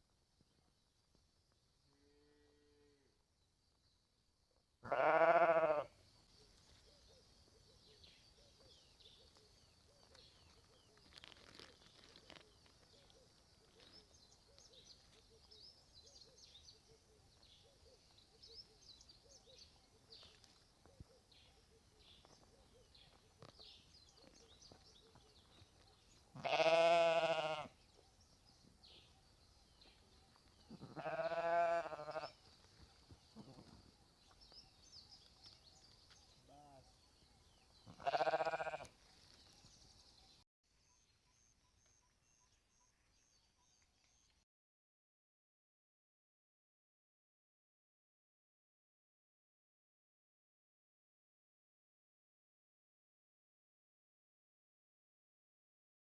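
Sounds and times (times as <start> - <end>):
sheep bleating: 4.8 - 6.0, 26.4 - 27.8, 30.7 - 32.4, 37.9 - 38.9.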